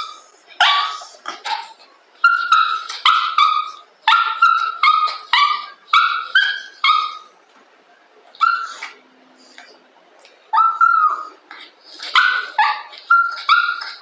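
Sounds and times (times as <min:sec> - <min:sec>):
small dog yapping: 0:00.0 - 0:07.3, 0:08.4 - 0:09.0, 0:10.5 - 0:14.0.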